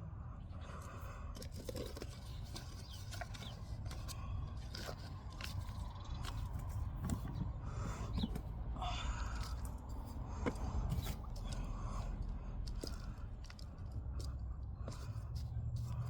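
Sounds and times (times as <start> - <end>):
hands scraping and crunching soil: 0.6 - 16.0
steady low rumble: 3.2 - 16.0.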